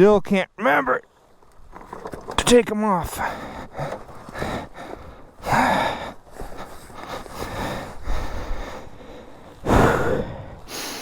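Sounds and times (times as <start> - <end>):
loud gasping breath: 3.2 - 11.0
person breathing hard: 3.2 - 11.0.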